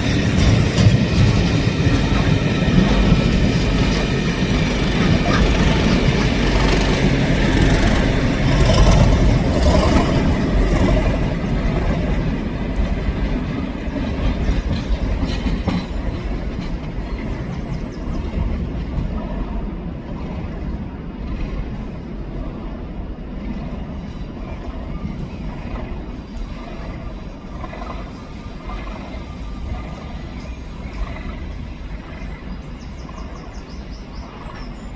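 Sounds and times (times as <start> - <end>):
wheels clattering over rail joints: 0.0 - 19.6
diesel train passing: 0.0 - 34.9.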